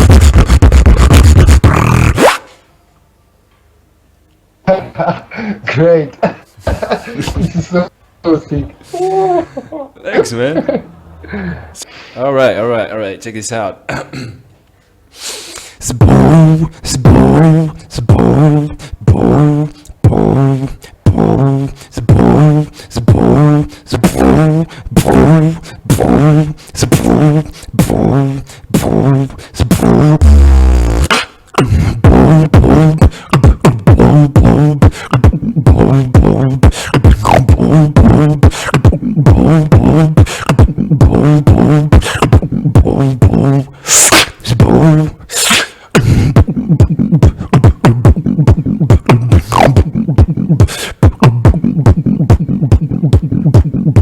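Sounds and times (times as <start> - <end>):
beatboxing: 0.0 - 2.5, 15.2 - 54.0.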